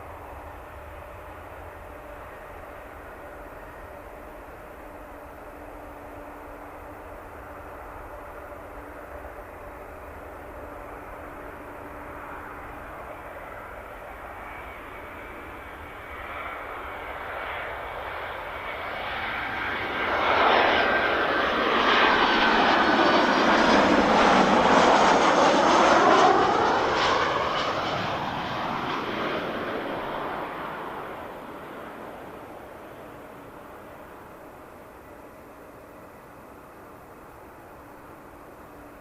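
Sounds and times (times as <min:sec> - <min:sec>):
airliner passing overhead: 0:00.0 - 0:39.0.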